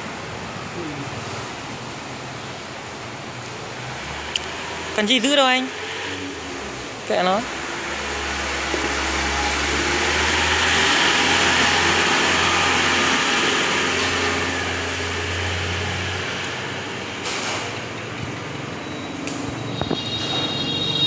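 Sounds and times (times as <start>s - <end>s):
window welding machine running: 3.6s - 17.8s.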